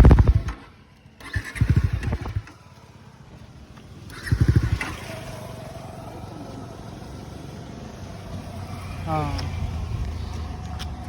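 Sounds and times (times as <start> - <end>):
steady hum: 0.0 - 0.8
motorcycle engine bursts: 0.0 - 3.1, 4.0 - 7.0.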